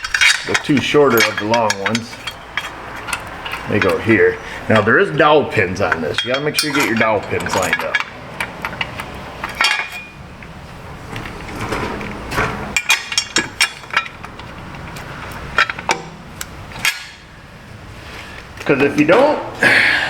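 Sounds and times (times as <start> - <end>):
tools clinking against metal: 0.0 - 10.2, 12.8 - 17.3.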